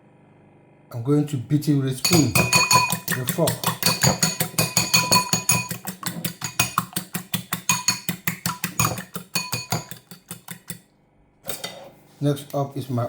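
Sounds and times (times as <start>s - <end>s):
fork whisking eggs in bowl: 2.0s - 10.8s.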